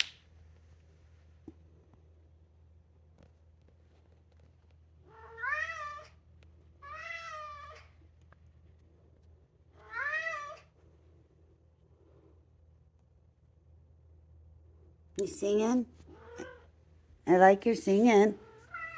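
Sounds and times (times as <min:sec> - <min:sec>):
cat meowing: 0:05.1 - 0:06.2, 0:06.8 - 0:07.9, 0:09.8 - 0:10.7, 0:16.1 - 0:16.7, 0:18.4 - 0:18.9.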